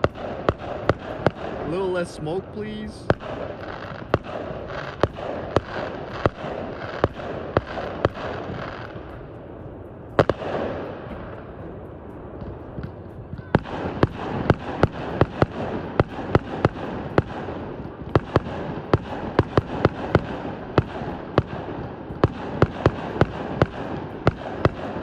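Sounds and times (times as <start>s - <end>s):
fireworks hissing: 0.0s - 9.3s
fireworks banging: 0.0s - 25.0s.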